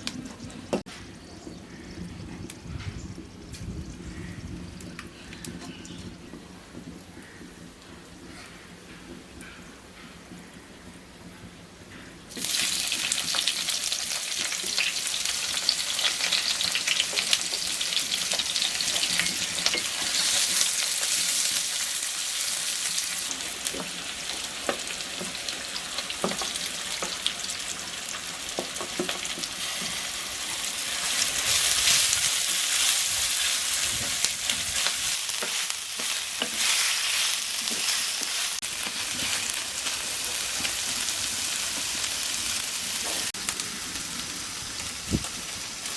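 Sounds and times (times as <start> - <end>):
food sizzling in hot oil: 12.3 - 45.9
utensil stirring in pan: 28.5 - 41.9.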